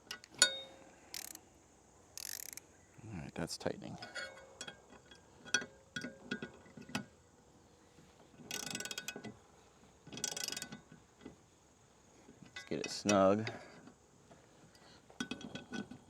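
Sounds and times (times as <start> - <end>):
wrench ratcheting clicks: 1.1 - 1.4, 2.2 - 2.6, 8.5 - 9.1.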